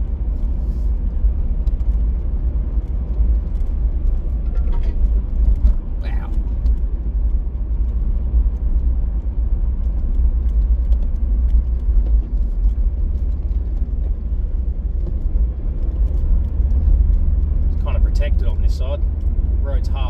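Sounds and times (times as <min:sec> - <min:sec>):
car driving rumble: 0:00.0 - 0:20.0.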